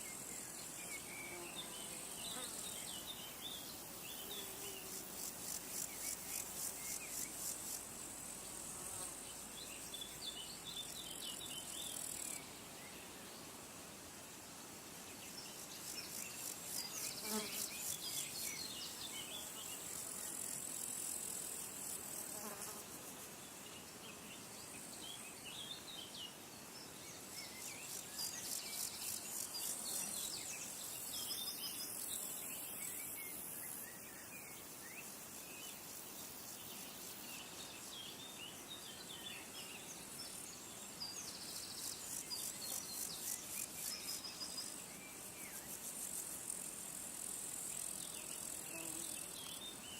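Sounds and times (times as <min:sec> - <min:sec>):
insects trilling: 0:27.0 - 0:49.9.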